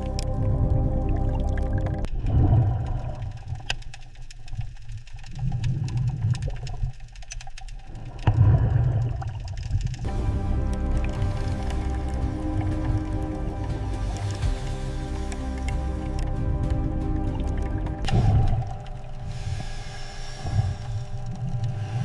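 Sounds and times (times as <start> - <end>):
background music: 0.0 - 2.1, 10.1 - 19.9
deep underwater rumbling: 0.0 - 22.0
faint clicks: 2.0 - 10.1.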